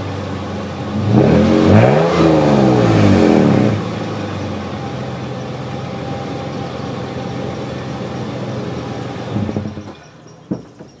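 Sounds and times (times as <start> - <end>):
car engine idling: 0.0 - 10.9
knock: 10.5 - 11.0.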